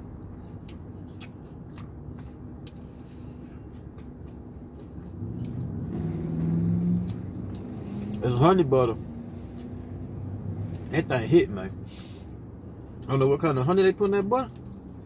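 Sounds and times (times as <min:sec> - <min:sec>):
man chewing with wet clicks: 0:00.3 - 0:05.8, 0:06.4 - 0:08.2, 0:09.4 - 0:10.2, 0:14.5 - 0:15.0.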